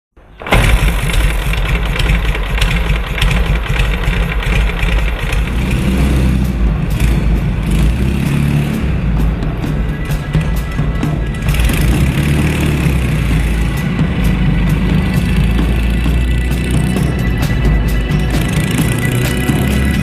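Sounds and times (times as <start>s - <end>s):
motorcycle engine running: 0.5s - 20.0s
music playing: 5.1s - 20.0s.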